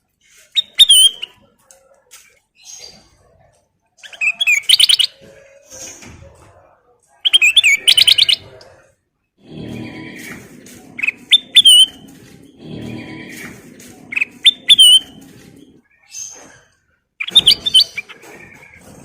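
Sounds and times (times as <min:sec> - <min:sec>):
bulbul singing: 0:07.3 - 0:08.6, 0:10.9 - 0:16.4, 0:17.2 - 0:18.8.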